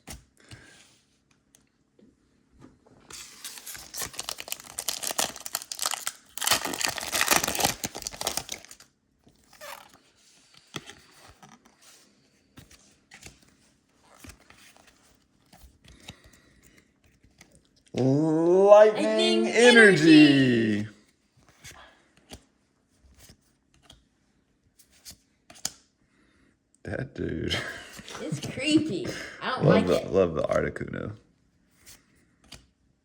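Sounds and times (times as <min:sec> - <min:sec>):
foil wrapper tearing and crinkling: 0:03.2 - 0:08.9.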